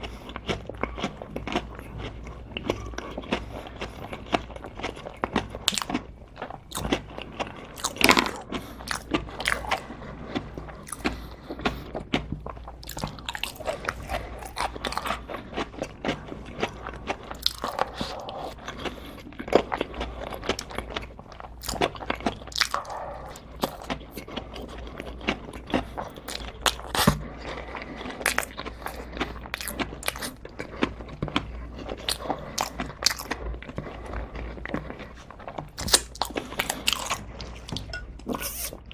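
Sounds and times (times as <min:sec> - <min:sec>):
chewing sounds: 0:00.0 - 0:38.9
person eating crunchy food: 0:00.0 - 0:38.9.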